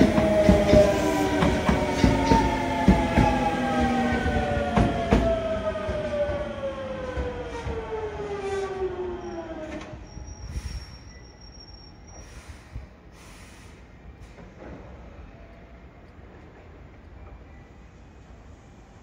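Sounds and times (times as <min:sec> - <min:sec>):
faint high squeal: 0:09.2 - 0:12.9.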